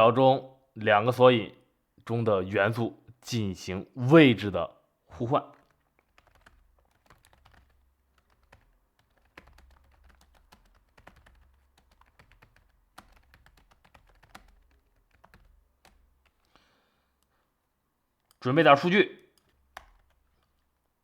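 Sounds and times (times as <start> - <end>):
faint keyboard typing: 5.4 - 17.4, 18.2 - 18.5, 19.1 - 20.9.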